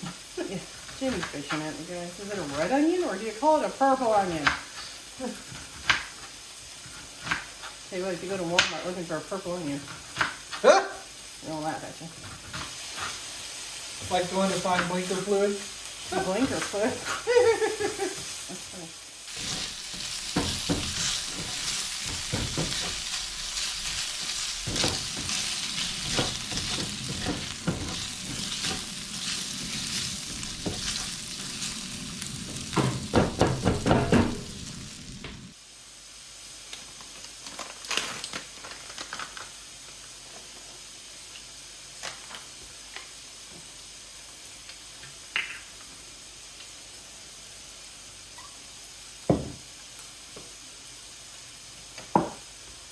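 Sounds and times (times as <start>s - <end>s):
bacon and onion sizzling in a pan: 0.0s - 52.9s
scraping in a frying pan: 11.8s - 35.1s.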